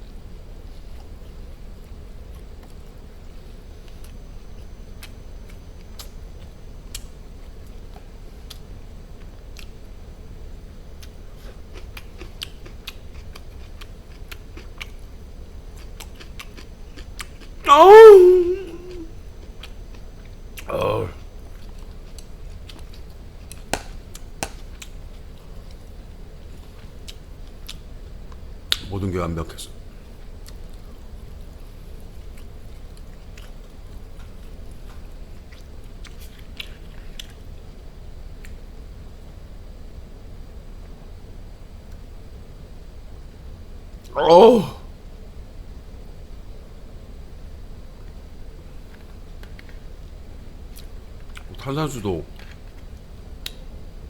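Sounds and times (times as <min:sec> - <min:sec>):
steady low hum: 0:00.0 - 0:54.0
chewing meat with mouth clicks: 0:11.0 - 0:17.6, 0:19.4 - 0:25.8, 0:32.3 - 0:37.4
person humming mmm: 0:17.7 - 0:19.1, 0:20.6 - 0:21.2.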